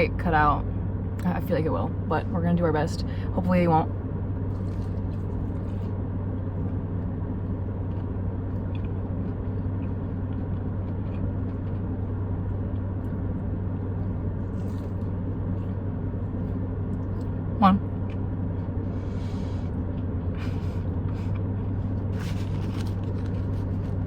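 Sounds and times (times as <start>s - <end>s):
faint chewing: 4.5s - 17.4s, 18.0s - 24.0s.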